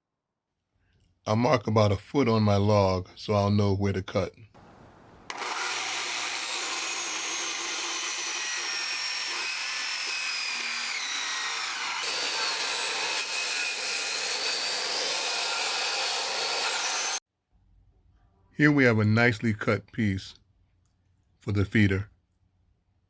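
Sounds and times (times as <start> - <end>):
power saw cutting log: 4.6 - 17.2.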